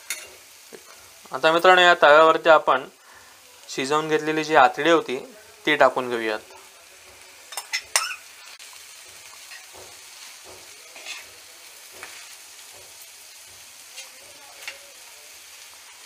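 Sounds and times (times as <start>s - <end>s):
food frying with sizzling hiss: 0.0s - 16.0s
steel spatula tapping and scraping: 0.1s - 0.4s, 9.3s - 13.0s.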